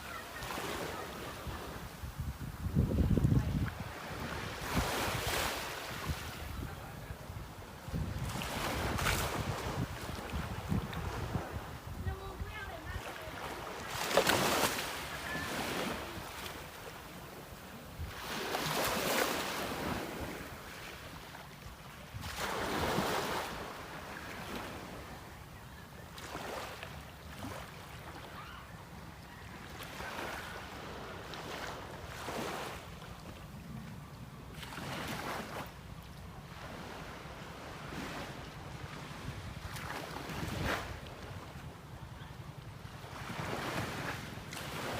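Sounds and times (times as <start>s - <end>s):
sea waves washing in: 0.0s - 25.3s
wind buffeting microphone: 1.5s - 13.0s.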